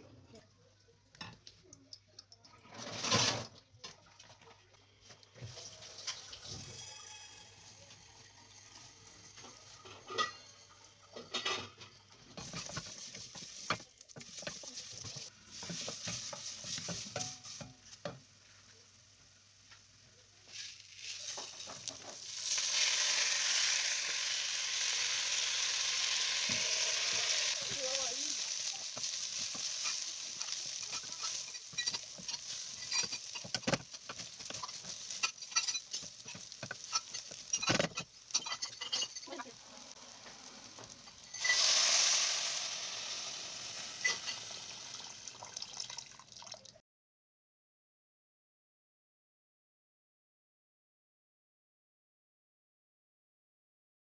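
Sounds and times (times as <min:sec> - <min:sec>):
noodles sizzling in oil: 0:04.5 - 0:46.3
rice poured into hot oil hissing: 0:05.3 - 0:46.4
wooden spoon scraping pot: 0:08.8 - 0:18.3, 0:20.4 - 0:23.0, 0:26.4 - 0:42.1.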